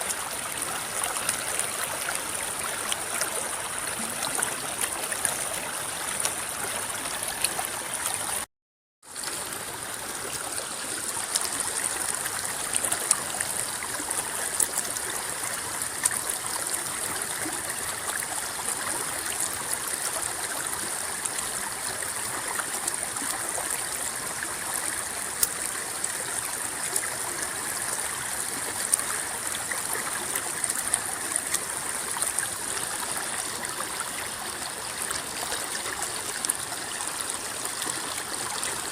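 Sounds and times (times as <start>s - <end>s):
river water rippling over rocks: 0.0s - 8.5s, 9.1s - 38.9s
small water splashes: 9.1s - 38.9s.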